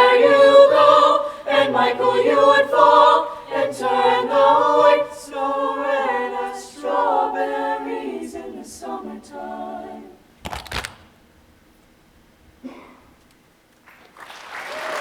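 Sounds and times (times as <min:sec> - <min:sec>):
choir singing a cappella: 0:00.0 - 0:10.3.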